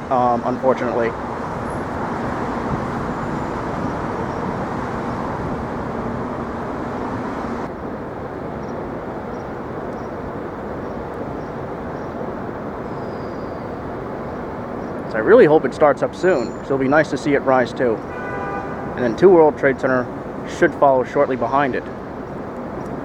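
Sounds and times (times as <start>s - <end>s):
faint low engine hum: 0.0s - 7.7s
street traffic rumble: 0.0s - 23.0s.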